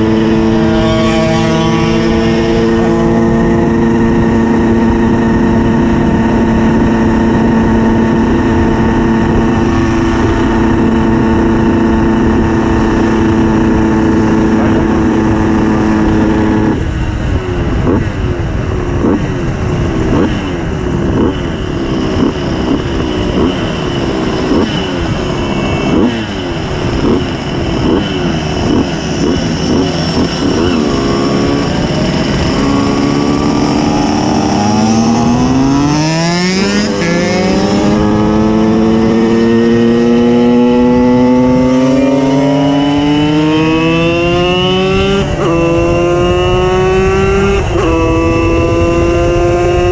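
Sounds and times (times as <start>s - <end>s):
two-stroke moped engine revving: 0.0s - 49.9s.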